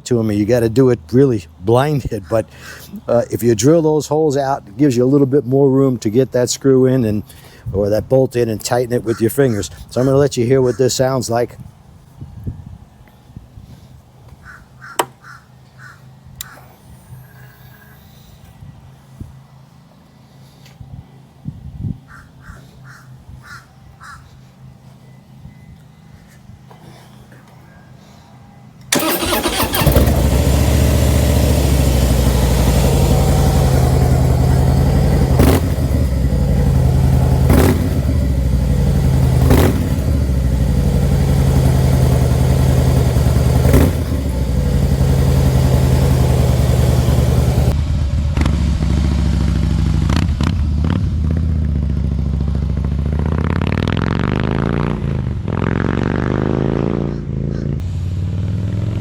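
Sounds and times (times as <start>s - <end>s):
motorcycle engine revving: 28.9s - 59.0s.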